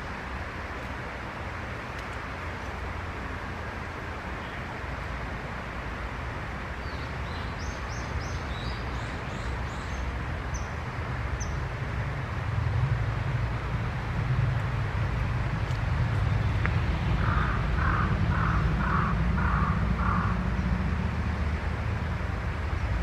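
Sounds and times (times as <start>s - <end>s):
low background rumble: 11.1s - 23.0s.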